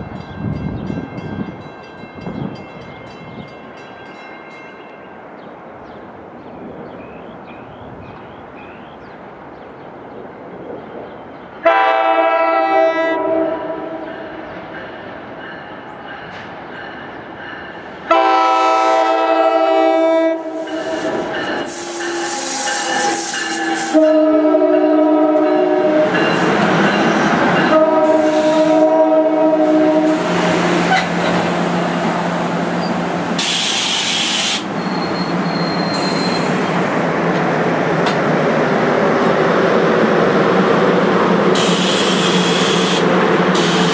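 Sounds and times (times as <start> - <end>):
train air horn blasts: 11.6 - 14.4, 18.1 - 26.3, 27.6 - 30.3, 41.6 - 43.9
train wheels clacking on rails: 14.0 - 32.2, 41.3 - 43.9.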